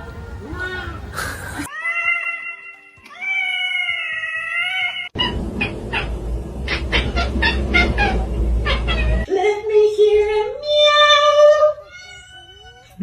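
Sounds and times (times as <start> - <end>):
low rumble: 5.2 - 9.3.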